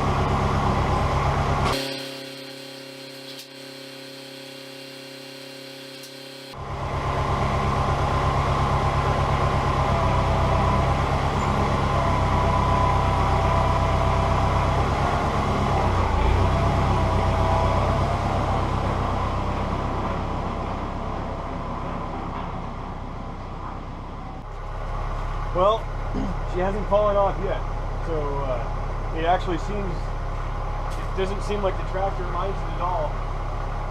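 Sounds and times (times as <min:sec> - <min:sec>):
tractor engine running: 0:00.0 - 0:03.0, 0:06.1 - 0:33.9
high hydraulic whine: 0:00.0 - 0:24.5.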